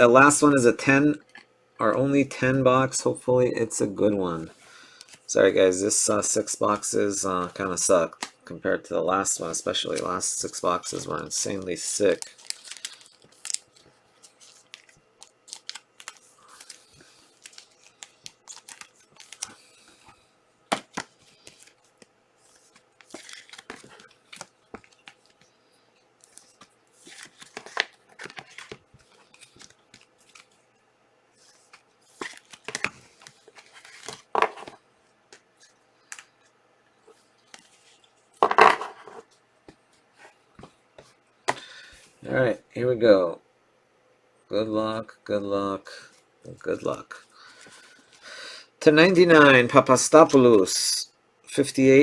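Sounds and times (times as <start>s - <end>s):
cardboard and foil rustling: 12.0s - 19.6s, 22.5s - 25.4s
plastic wrapper tearing and crinkling: 12.1s - 19.5s.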